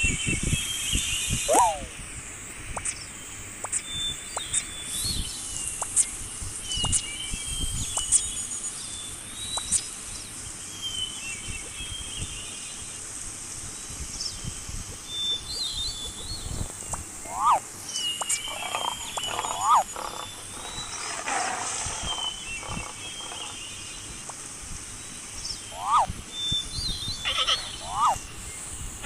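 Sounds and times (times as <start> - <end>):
outdoor background noise: 0.0 - 29.0
high-pitched animal chirps: 1.5 - 1.9, 17.3 - 17.6, 18.2 - 20.8, 25.7 - 26.1, 27.2 - 28.2.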